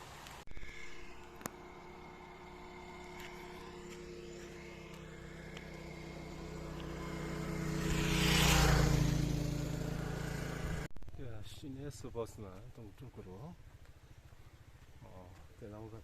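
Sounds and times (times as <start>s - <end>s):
vehicle passing on paved road: 0.0s - 10.9s.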